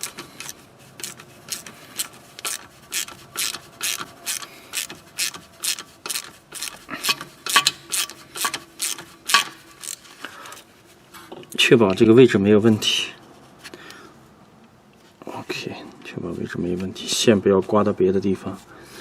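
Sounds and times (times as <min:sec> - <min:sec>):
ratchet wrench strokes: 0:00.0 - 0:10.0.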